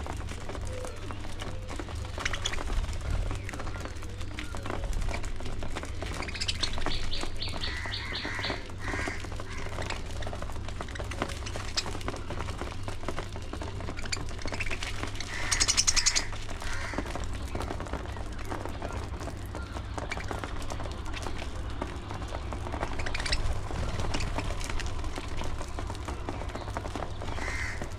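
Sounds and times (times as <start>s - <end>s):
low rumble: 0.0s - 27.9s
budgerigars chirping: 6.1s - 9.9s, 14.0s - 17.0s, 22.9s - 24.5s, 27.4s - 27.8s.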